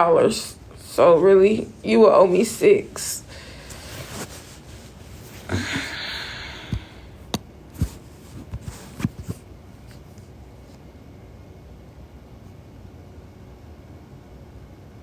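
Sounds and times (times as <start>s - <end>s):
breathy exhale: 3.3s - 4.5s, 5.2s - 7.2s
soft handling clicks and knocks: 6.6s - 10.8s.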